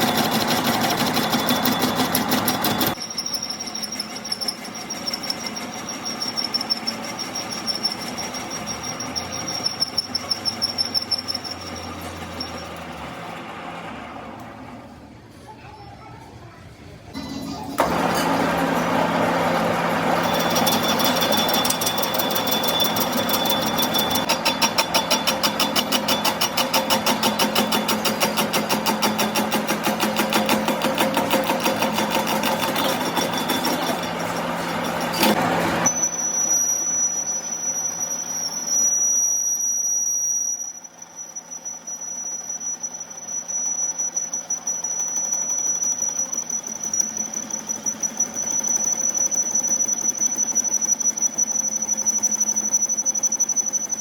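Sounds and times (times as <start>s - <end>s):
high-pitched machine whine: 0.0s - 13.9s, 17.2s - 54.0s
workshop machine clattering: 0.0s - 15.1s, 17.1s - 36.0s.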